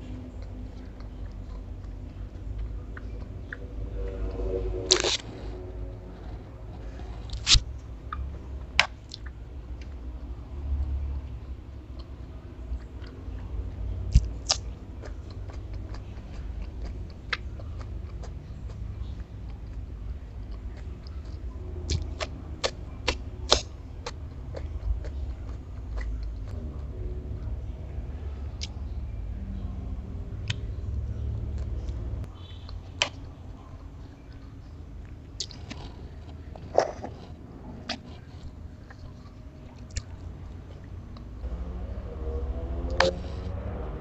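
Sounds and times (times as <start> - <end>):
chewing and crunching food: 0.0 - 41.8
low hum: 0.0 - 44.0.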